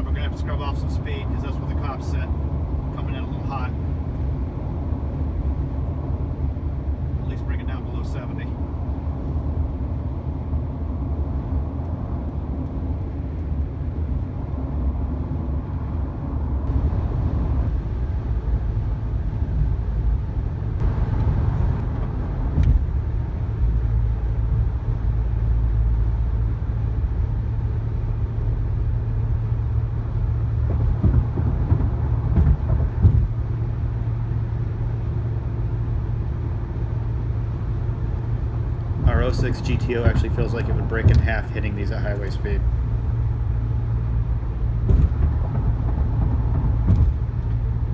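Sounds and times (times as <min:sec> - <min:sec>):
road and tyre rumble in car: 0:00.0 - 0:47.9
tyres thumping over bumps: 0:37.6 - 0:43.3.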